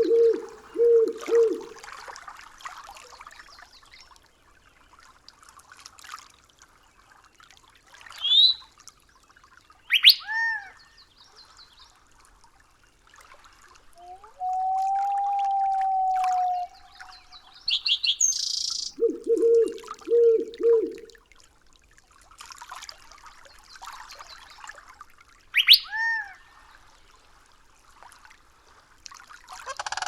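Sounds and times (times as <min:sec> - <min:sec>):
bird call upward sweep: 0:00.0 - 0:01.7, 0:14.0 - 0:21.1, 0:25.6 - 0:25.9
bird call rising notes: 0:00.0 - 0:01.8, 0:14.0 - 0:21.1, 0:25.6 - 0:25.9
faint water trickle: 0:00.0 - 0:30.0.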